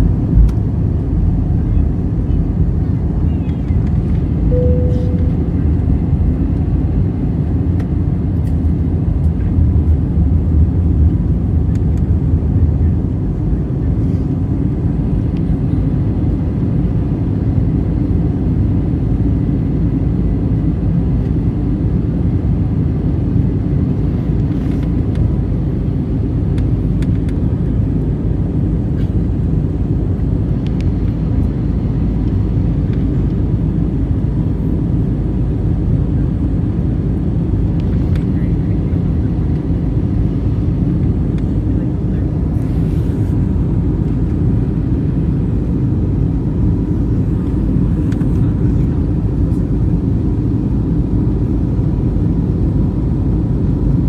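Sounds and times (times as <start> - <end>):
jet engines rumbling in cabin: 0.0 - 54.0
short tone: 4.5 - 5.9.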